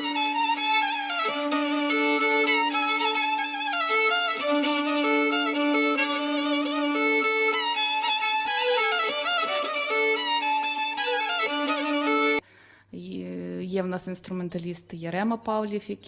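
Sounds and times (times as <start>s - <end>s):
fiddle folk melody: 0.0s - 12.4s.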